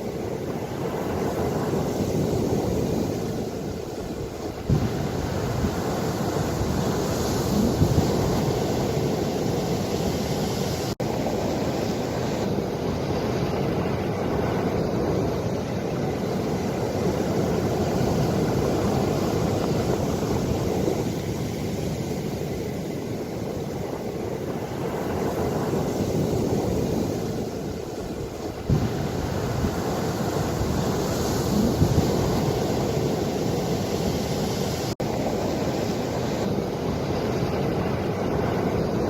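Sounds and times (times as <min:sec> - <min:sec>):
ocean waves washing: 0:00.0 - 0:39.0
wind buffeting microphone: 0:00.0 - 0:39.0.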